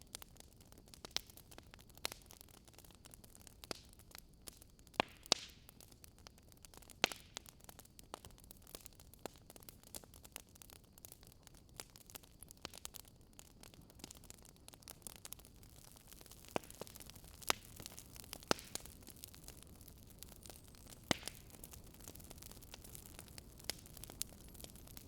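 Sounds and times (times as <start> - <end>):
soft steady hiss: 0.0 - 25.0
wood fire crackling: 0.0 - 25.0.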